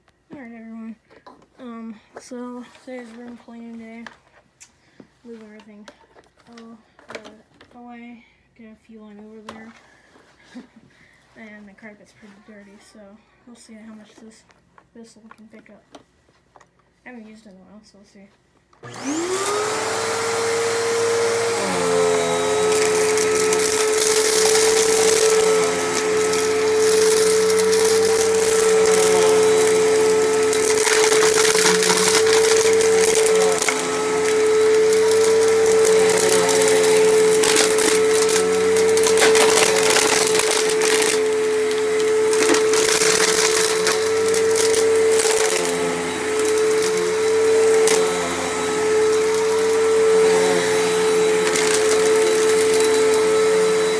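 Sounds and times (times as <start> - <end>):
vacuum cleaner running on carpet: 18.8 - 53.9.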